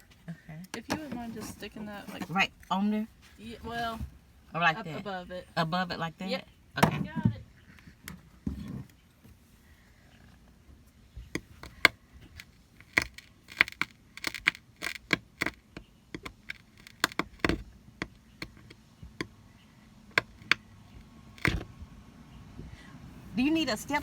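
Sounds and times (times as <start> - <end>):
small hard objects clicking: 11.4 - 19.4.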